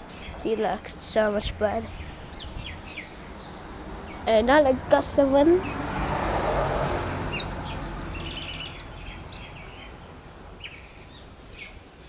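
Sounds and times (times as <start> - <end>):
birds chirping: 0.0 - 12.0
wind rumbling on microphone: 0.0 - 12.0.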